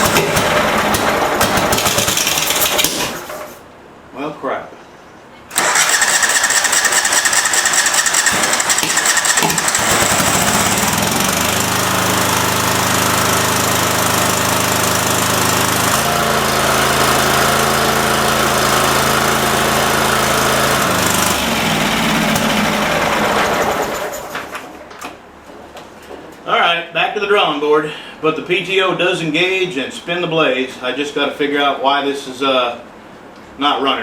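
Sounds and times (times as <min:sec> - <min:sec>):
garden tractor engine running: 0:00.0 - 0:03.4, 0:05.5 - 0:24.7
mower blades spinning: 0:00.0 - 0:03.5, 0:05.5 - 0:24.7.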